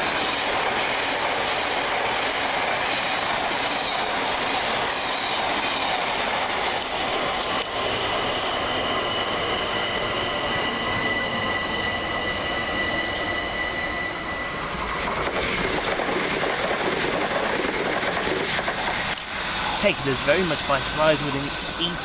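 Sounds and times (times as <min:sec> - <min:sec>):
electric train high whine: 0:00.0 - 0:22.0
train running rumble: 0:00.0 - 0:22.0.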